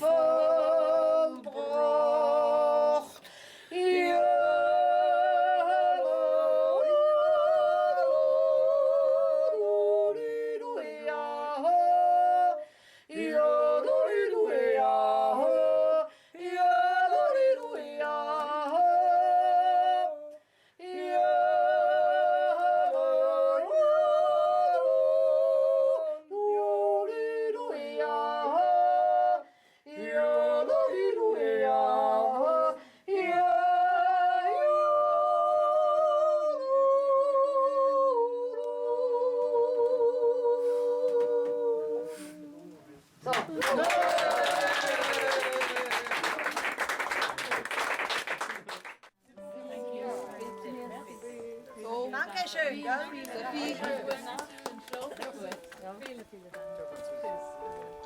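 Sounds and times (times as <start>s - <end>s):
voices yodeling in harmony: 0.0s - 43.0s, 43.6s - 47.0s.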